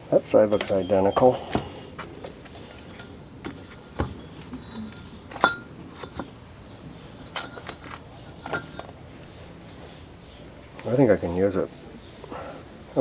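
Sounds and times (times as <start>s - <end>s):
metal parts clinking: 2.5s - 6.4s, 7.2s - 9.0s.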